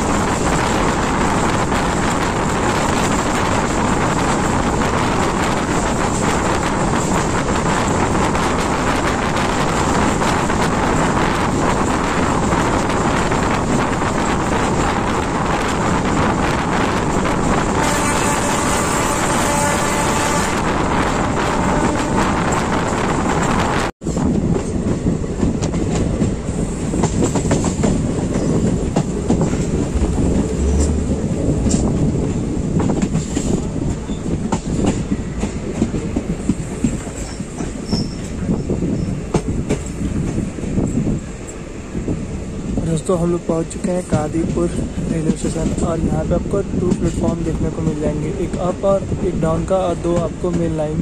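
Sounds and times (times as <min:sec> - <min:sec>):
train wheels rumbling and clattering: 0:00.0 - 0:51.0
train horn: 0:17.7 - 0:22.5.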